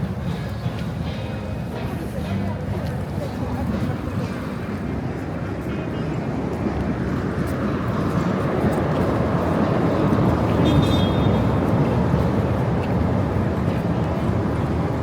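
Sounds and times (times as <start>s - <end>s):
city traffic noise: 0.0s - 15.0s.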